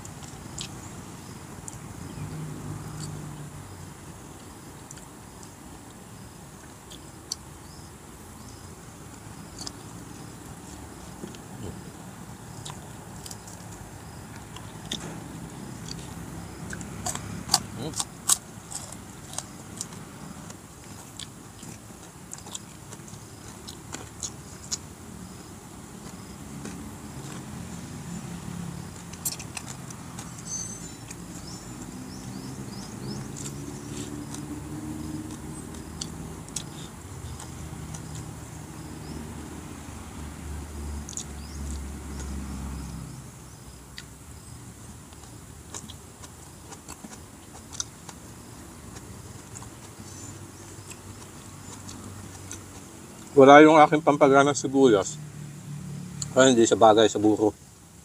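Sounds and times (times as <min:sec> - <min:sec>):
chewing and lip smacking: 0:00.0 - 0:00.8, 0:01.6 - 0:03.4, 0:04.8 - 0:05.6, 0:09.1 - 0:39.4, 0:41.0 - 0:42.9, 0:45.0 - 0:53.4
vehicle engine hum: 0:00.0 - 0:58.0.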